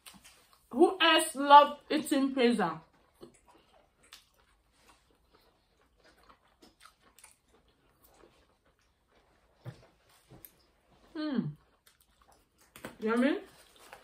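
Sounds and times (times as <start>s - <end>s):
chewing with mouth smacks: 0.0s - 0.7s, 2.8s - 14.0s.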